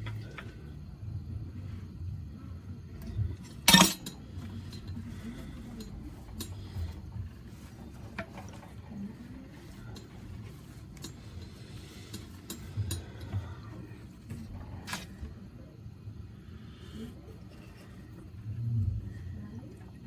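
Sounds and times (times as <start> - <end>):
metal parts clinking: 3.6 - 4.8.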